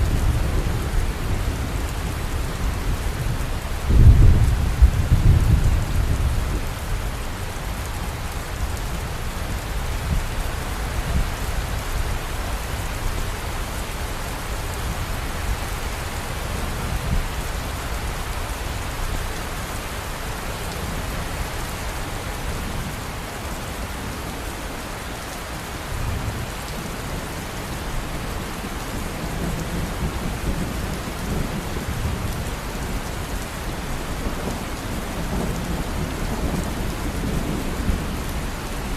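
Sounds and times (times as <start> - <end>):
thunder rumbling: 0.0 - 6.9
steady rain falling: 0.0 - 38.9.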